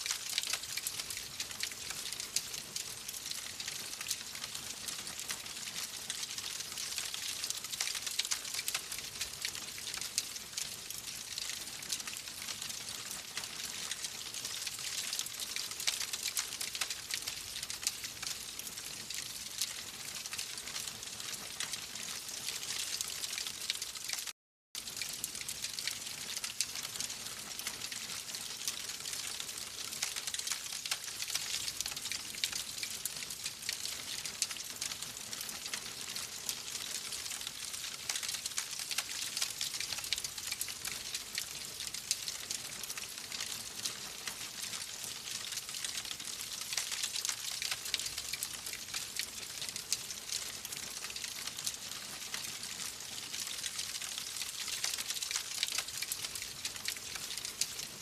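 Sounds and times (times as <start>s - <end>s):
wood fire crackling: 0.0s - 18.8s, 24.8s - 52.4s.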